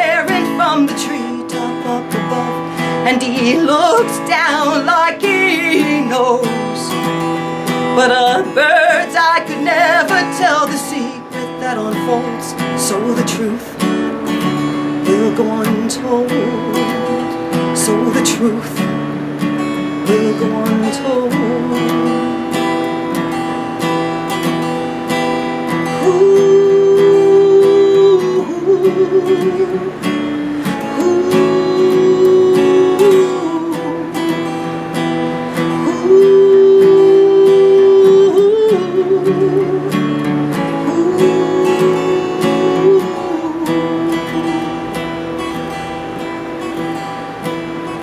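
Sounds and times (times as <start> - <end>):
acoustic guitar strumming: 0.0 - 48.0
wordless sung melody: 0.0 - 48.0.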